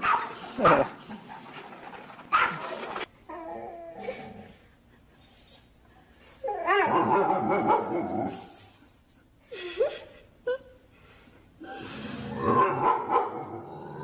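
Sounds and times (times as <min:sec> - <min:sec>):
dog barking: 0:00.0 - 0:00.9, 0:12.6 - 0:13.4.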